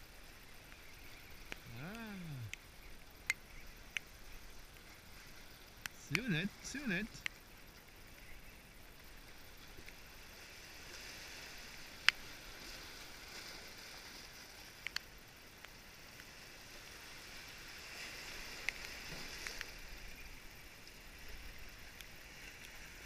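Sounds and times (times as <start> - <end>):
small waves washing over rocks: 1.6 - 2.5, 9.3 - 23.0.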